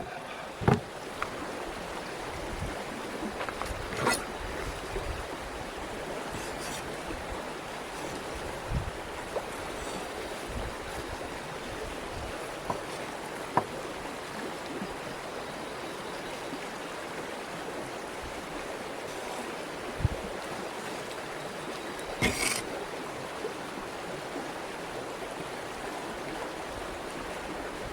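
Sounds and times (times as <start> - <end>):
running water rushing: 0.0 - 27.9
soft knocks and clicks: 0.6 - 1.3.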